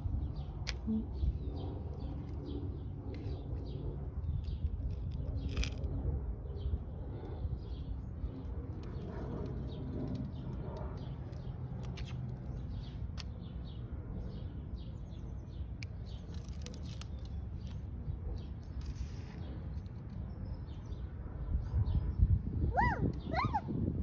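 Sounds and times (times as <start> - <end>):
small birds chirping: 6.5 - 21.1.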